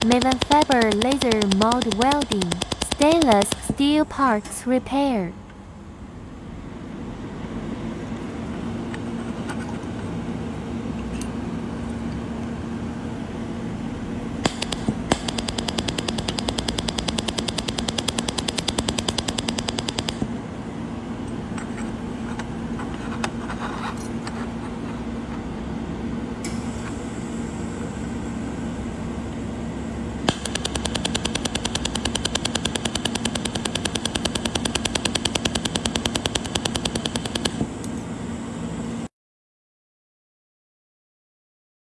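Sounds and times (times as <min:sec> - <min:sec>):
laser welder sharp ticks: 0:00.0 - 0:04.1, 0:14.4 - 0:20.2, 0:30.2 - 0:38.0
welding machine hum: 0:00.0 - 0:04.1, 0:12.9 - 0:20.3, 0:26.4 - 0:39.1.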